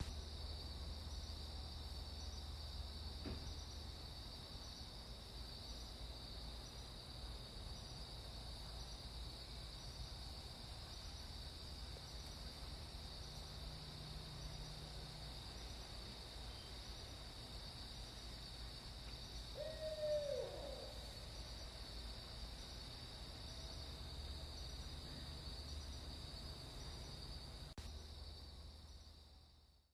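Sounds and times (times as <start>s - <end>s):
owl hooting: 19.6s - 21.1s.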